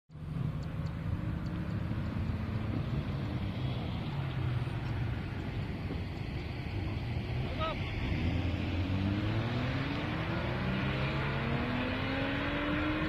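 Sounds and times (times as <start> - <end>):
car engine and exhaust running: 0.1 - 13.0.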